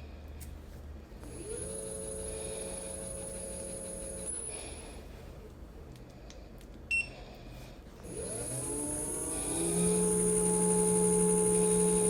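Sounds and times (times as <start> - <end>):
small vacuum motor whining: 1.2 - 5.0, 8.0 - 12.0.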